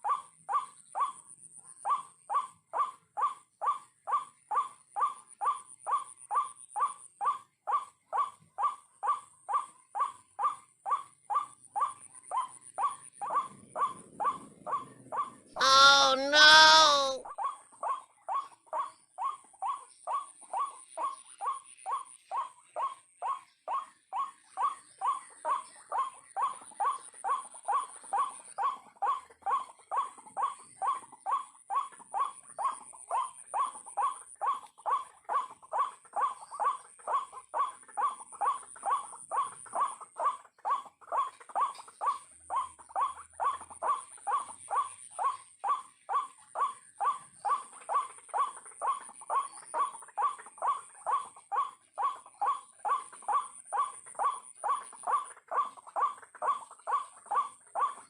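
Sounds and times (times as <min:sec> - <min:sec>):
waterhen calling: 0:15.6 - 0:17.2.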